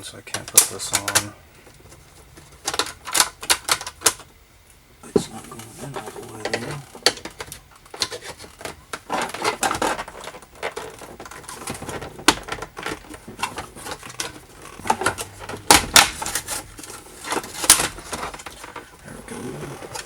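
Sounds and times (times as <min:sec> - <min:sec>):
plastic clicks and knocks: 0:02.6 - 0:04.3, 0:06.4 - 0:18.9
plastic trim snapping: 0:11.7 - 0:18.8.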